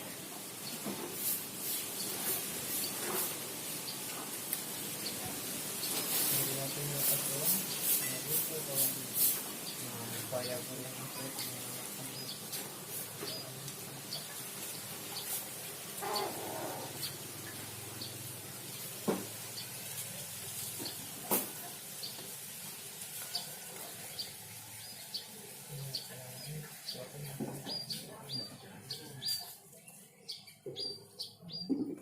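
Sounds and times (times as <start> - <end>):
munias chirping: 9.6 - 18.4, 23.2 - 32.0.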